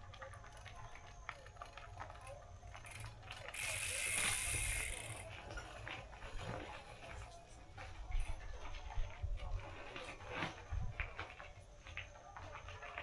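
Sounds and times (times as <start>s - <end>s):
bicycle freehub ratcheting: 0.3s - 6.3s.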